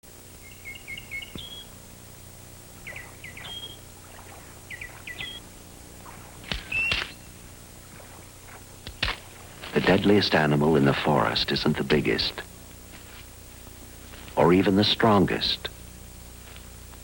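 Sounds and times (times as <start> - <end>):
loud bird call: 0.4 - 1.7, 2.8 - 8.2
bird chirping: 0.4 - 1.8, 2.8 - 7.4
sharp snaps: 6.4 - 7.2.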